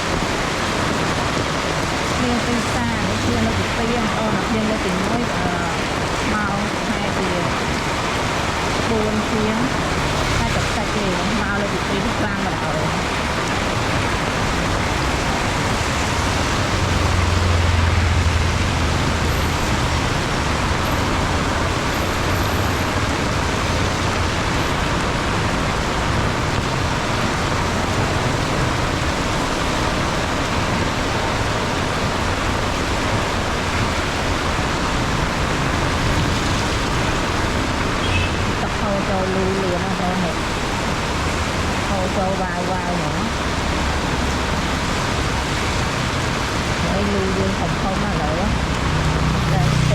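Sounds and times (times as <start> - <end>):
heavy rain pouring: 0.0 - 49.9
passing vehicle rumble: 0.0 - 49.9.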